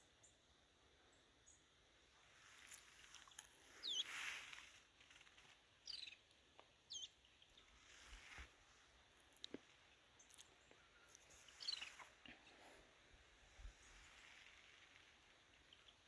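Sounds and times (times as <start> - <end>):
soft outdoor background noise: 0.0 - 16.0
high whistling bird calls: 3.8 - 4.6, 5.8 - 6.2, 6.9 - 7.7, 10.8 - 12.1.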